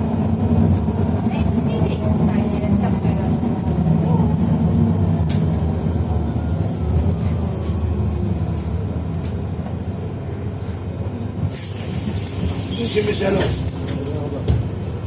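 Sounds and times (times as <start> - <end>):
vehicle rumble inside cabin: 0.0 - 15.0.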